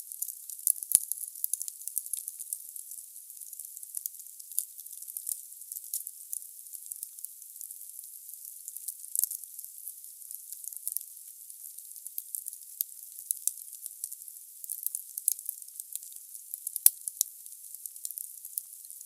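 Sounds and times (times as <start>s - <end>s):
wood fire crackling and popping: 9.1s - 9.4s.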